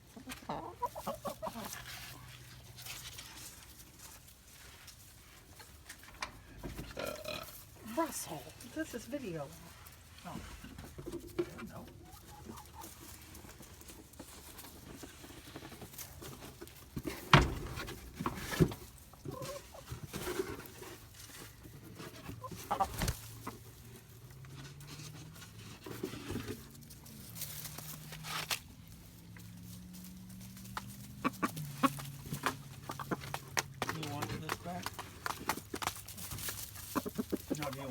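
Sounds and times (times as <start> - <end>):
chickens clucking softly: 0.0 - 3.2, 10.8 - 17.1, 18.5 - 25.2, 30.0 - 37.9.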